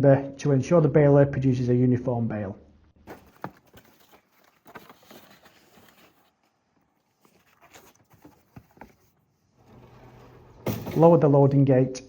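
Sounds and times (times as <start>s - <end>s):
cardboard boxes knocking and scuffing: 3.0s - 6.3s, 7.3s - 9.2s.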